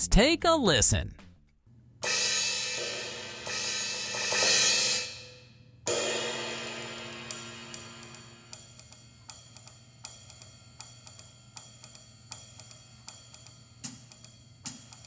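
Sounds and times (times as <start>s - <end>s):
electronic cymbal hits: 5.9s - 8.5s.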